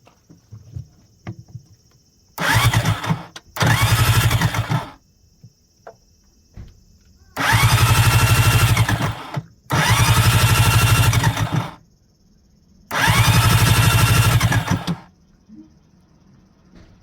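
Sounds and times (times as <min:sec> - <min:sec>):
engine starter cranking: 0:02.4 - 0:05.0, 0:07.4 - 0:11.8, 0:12.9 - 0:15.1.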